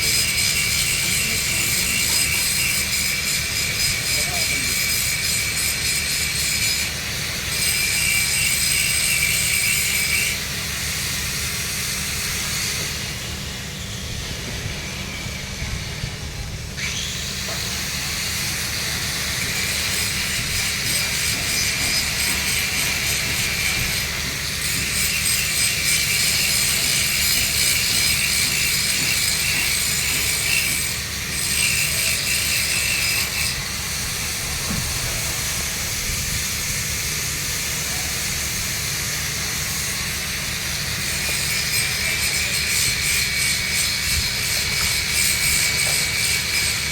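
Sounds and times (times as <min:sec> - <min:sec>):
welding arc hissing: 0:14.3 - 0:46.9.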